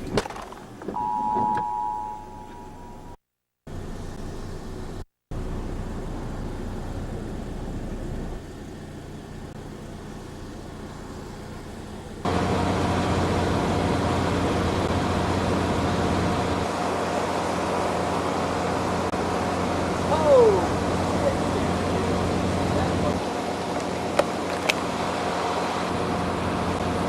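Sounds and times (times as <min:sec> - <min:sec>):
engine idling hum: 0:03.7 - 0:27.0.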